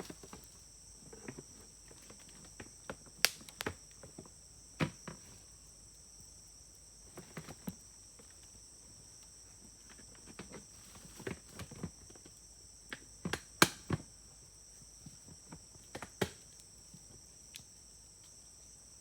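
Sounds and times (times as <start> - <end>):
wood fire crackling and popping: 3.2 - 3.8.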